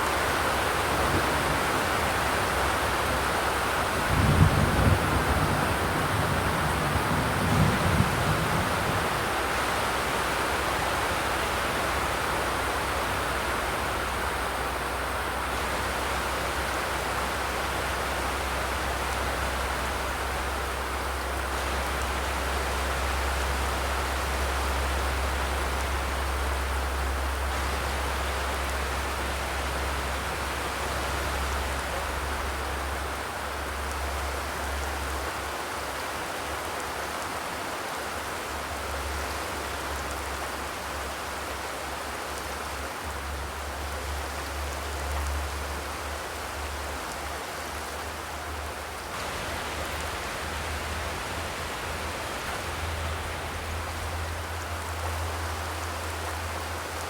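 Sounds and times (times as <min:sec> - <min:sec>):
steady rain hiss: 0:00.0 - 0:57.0
low rumble: 0:49.2 - 0:55.9.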